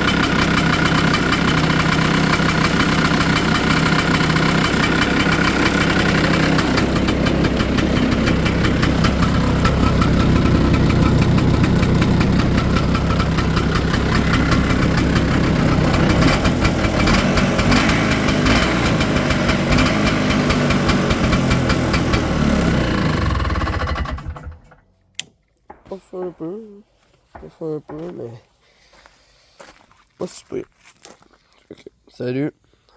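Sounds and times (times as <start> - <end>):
engine idling: 0.0 - 24.9.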